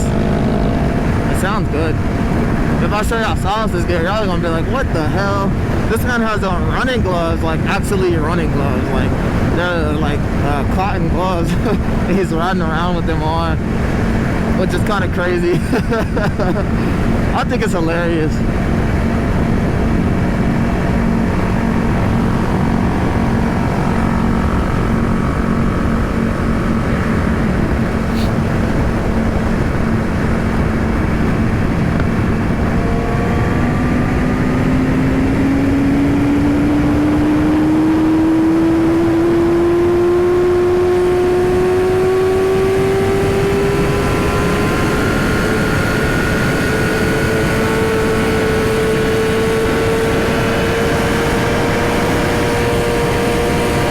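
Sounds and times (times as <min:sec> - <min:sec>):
motorcycle engine running: 0:00.0 - 0:07.6, 0:16.6 - 0:53.9
wind rush: 0:00.0 - 0:39.6.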